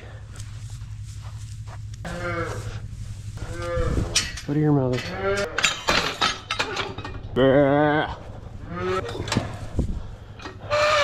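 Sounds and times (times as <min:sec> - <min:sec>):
knocks and rustling: 0:00.4 - 0:07.4
cattle bawling: 0:02.0 - 0:04.4, 0:05.0 - 0:05.7, 0:06.6 - 0:09.7, 0:10.4 - 0:11.0.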